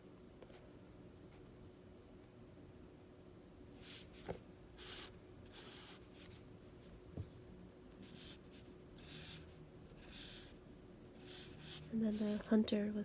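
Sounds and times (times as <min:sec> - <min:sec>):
drawing tool scratching paper: 0:04.8 - 0:06.4, 0:08.0 - 0:10.6, 0:11.2 - 0:12.6.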